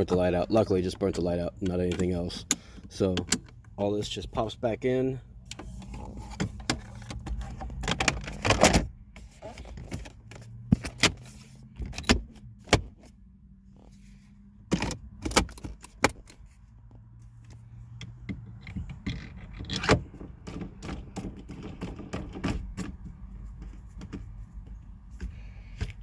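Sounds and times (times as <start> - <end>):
plastic rattles and ticks: 18.0 - 26.0.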